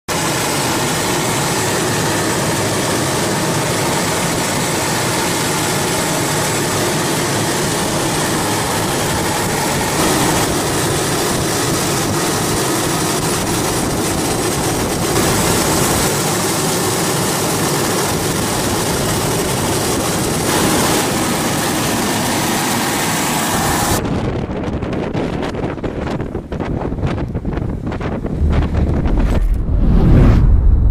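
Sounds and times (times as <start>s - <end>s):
boat engine running: 0.2s - 24.0s
wind buffeting microphone: 3.2s - 30.9s.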